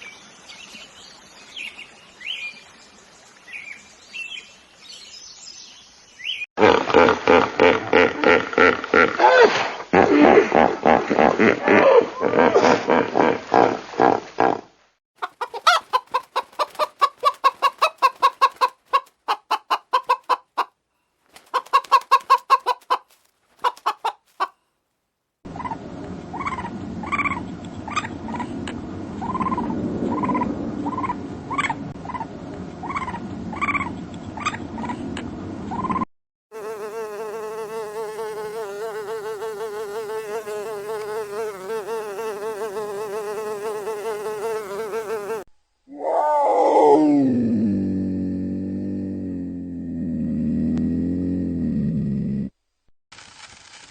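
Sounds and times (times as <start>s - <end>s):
chicken clucking: 15.2s - 20.8s, 21.4s - 24.6s
fly buzzing: 36.5s - 45.5s.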